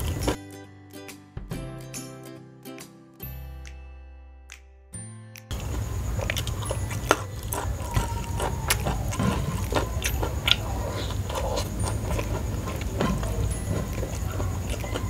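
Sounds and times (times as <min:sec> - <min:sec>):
person chewing: 0:00.0 - 0:00.4, 0:05.4 - 0:15.0
steady low hum: 0:05.5 - 0:15.0.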